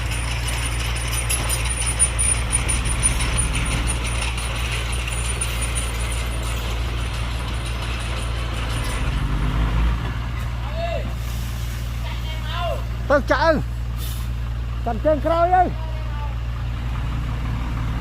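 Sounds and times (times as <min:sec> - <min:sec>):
light metallic clanks: 0:00.0 - 0:10.5
heavy diesel engine running: 0:00.0 - 0:18.0.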